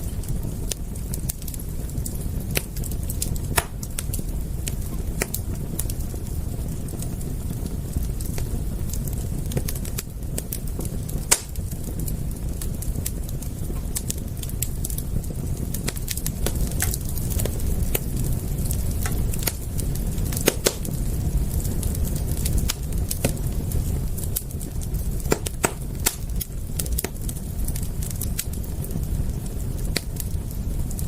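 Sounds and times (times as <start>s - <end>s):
low rumble of flames: 0.0s - 31.0s
wood fire crackling: 0.0s - 31.0s.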